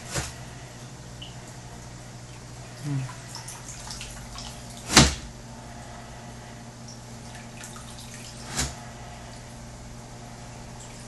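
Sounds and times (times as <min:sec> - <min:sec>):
aquarium vacuum humming: 0:00.0 - 0:11.0
water dripping and trickling: 0:01.1 - 0:04.9, 0:06.8 - 0:08.5.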